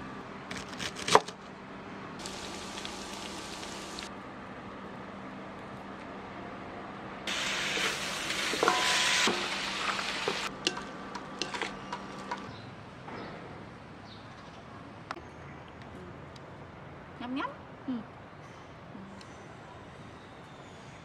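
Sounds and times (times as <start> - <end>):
oil sizzling in a wok: 2.2 - 4.1, 7.3 - 12.5
spatula knocking and scraping a wok: 7.3 - 12.5.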